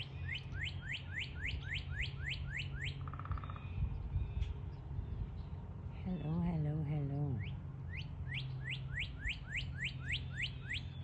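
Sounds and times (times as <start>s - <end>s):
bird whistling notes: 0.0s - 3.0s, 7.4s - 11.0s
wind rumble on microphone: 0.0s - 8.3s.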